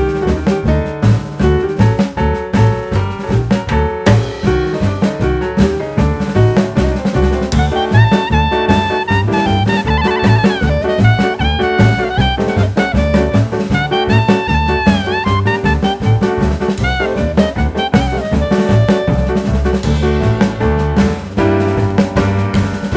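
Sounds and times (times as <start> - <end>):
drum and bass beat: 0.0 - 22.9
brass melody: 6.4 - 22.9.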